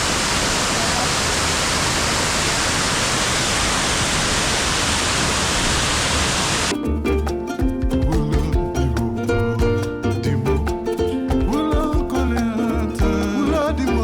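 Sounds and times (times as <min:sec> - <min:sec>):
waterfall rushing: 0:00.0 - 0:06.7.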